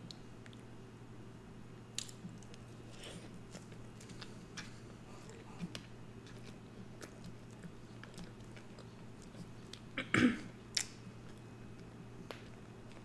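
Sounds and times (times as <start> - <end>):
chewing and wet mouth sounds: 0.0 - 0.7, 1.9 - 10.0, 10.7 - 13.0
person coughing: 10.0 - 10.5.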